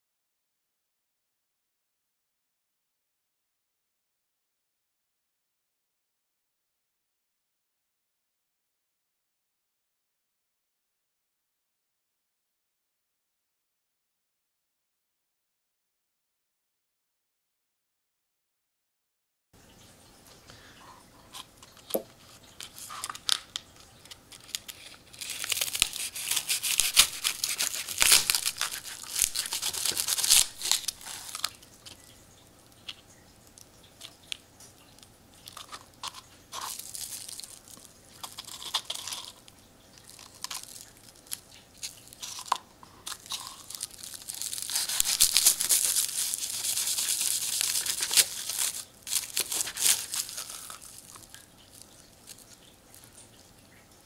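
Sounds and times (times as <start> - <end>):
small crackles and clicks: 21.2 - 54.0
papery nest crunching and tearing: 24.3 - 31.6, 43.1 - 51.4.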